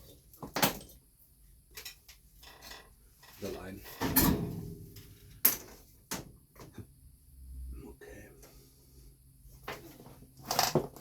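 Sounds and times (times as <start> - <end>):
tools clattering and knocking: 0.4 - 1.0, 1.7 - 6.9.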